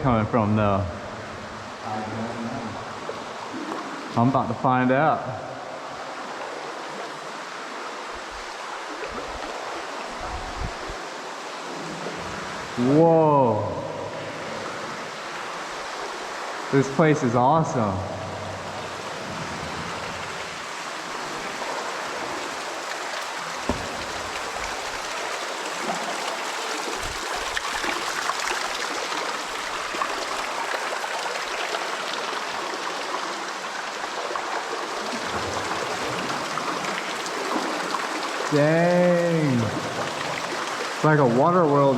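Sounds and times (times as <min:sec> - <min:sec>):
water rushing into a mine: 0:00.0 - 0:41.9
dull knocks: 0:23.6 - 0:24.7.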